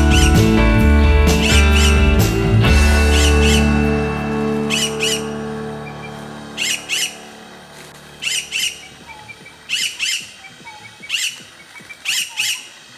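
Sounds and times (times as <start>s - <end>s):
background music: 0.0s - 11.3s
bird squawking: 1.4s - 2.1s, 3.1s - 3.8s, 4.7s - 5.3s, 8.2s - 12.8s.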